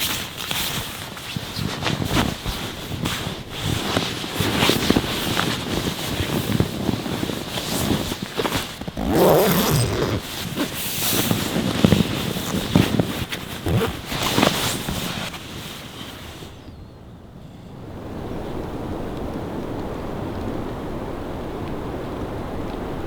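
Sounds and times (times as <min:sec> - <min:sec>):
tent fabric flapping: 0:00.0 - 0:16.6.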